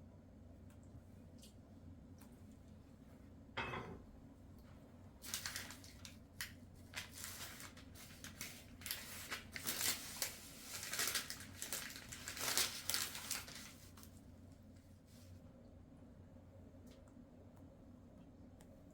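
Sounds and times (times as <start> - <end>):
crinkling and rustling: 5.2 - 15.4.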